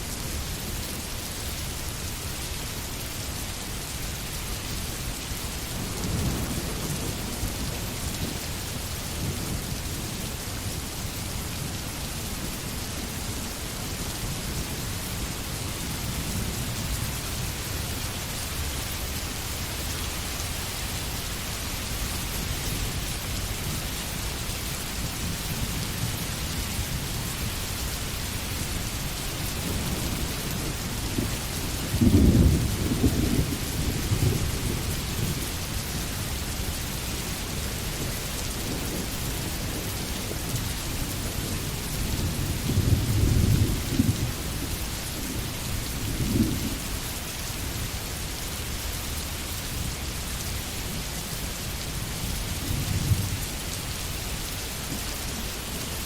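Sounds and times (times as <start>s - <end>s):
rain falling on foliage: 0.0s - 56.0s
thunder rumbling: 28.8s - 35.6s, 41.1s - 46.9s.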